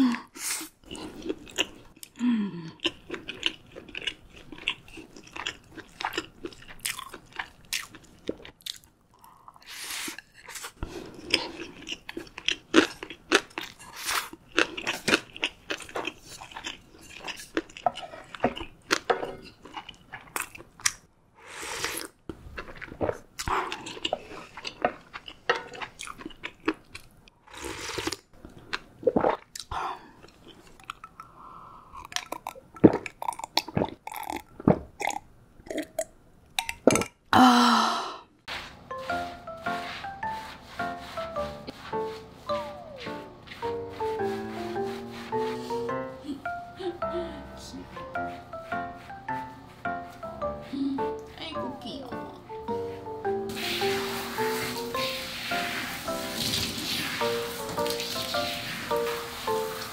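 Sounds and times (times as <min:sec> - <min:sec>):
person chewing food: 0:00.6 - 0:37.3.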